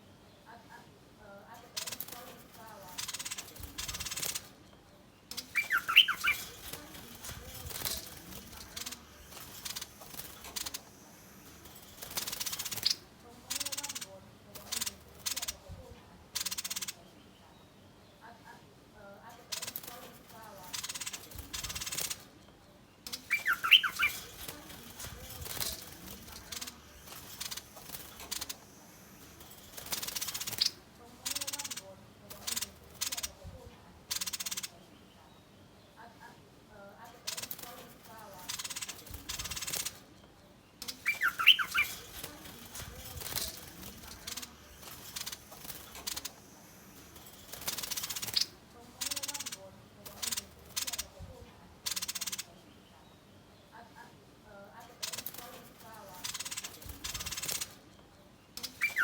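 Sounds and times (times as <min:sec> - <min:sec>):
bird sweeping chirps: 0:05.3 - 0:07.3, 0:23.1 - 0:28.6, 0:40.8 - 0:42.8
bird alarm calls: 0:05.3 - 0:15.6, 0:23.1 - 0:33.4, 0:40.8 - 0:51.2, 0:58.6 - 0:59.0.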